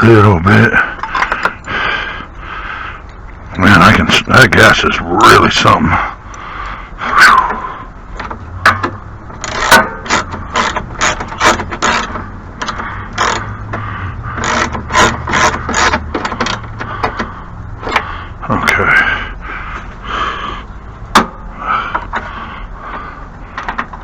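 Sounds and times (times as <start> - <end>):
metallic clicks and knocks of tools: 23.5 - 24.0.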